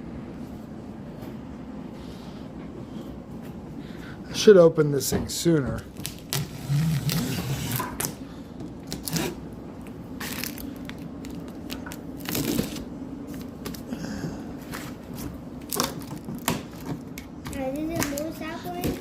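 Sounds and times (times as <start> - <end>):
cardboard tearing and crunching: 6.0 - 8.2, 8.8 - 9.4, 10.2 - 12.9.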